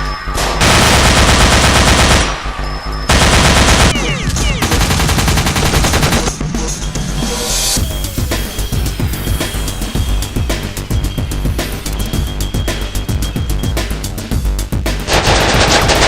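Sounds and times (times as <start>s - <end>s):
background music: 0.0s - 16.0s
machine gun bursts: 0.6s - 2.4s, 3.1s - 6.4s, 15.1s - 16.0s.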